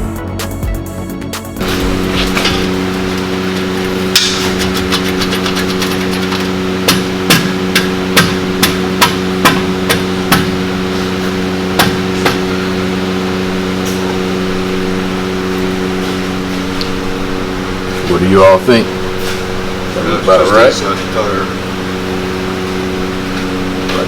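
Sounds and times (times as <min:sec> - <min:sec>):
steady hum: 0:00.0 - 0:24.0
hammer striking metal pipe: 0:04.0 - 0:06.0, 0:06.8 - 0:10.6, 0:11.2 - 0:12.5.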